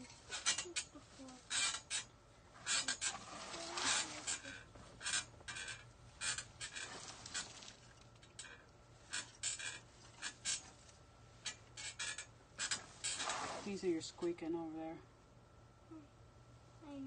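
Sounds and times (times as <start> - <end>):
artificial pine needles rustling: 2.7 - 8.1.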